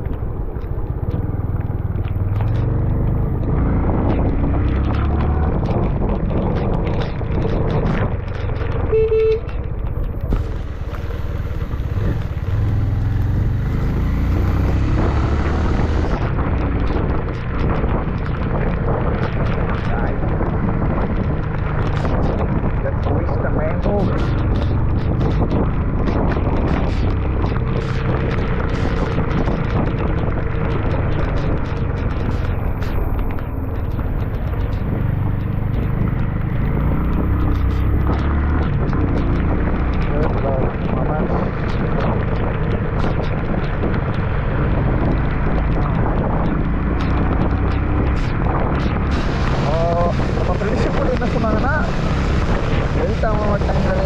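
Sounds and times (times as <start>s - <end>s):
motorcycle engine and road rumble: 0.0s - 54.0s
wind noise: 0.0s - 54.0s
vehicle horn beep: 8.9s - 9.6s.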